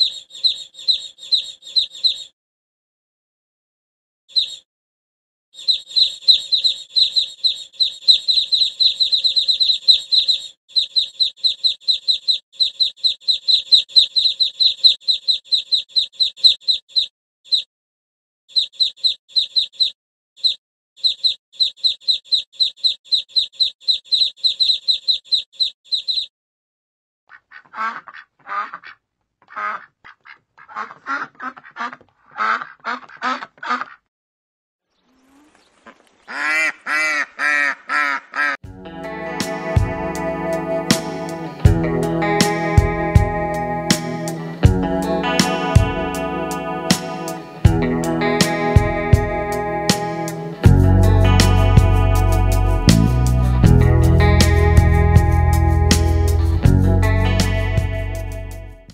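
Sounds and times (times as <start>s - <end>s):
ducks peeping: 0.0s - 2.3s, 5.6s - 17.6s, 18.5s - 26.3s, 27.3s - 34.0s, 34.9s - 38.6s
ducks quacking: 27.3s - 34.1s, 35.3s - 38.6s.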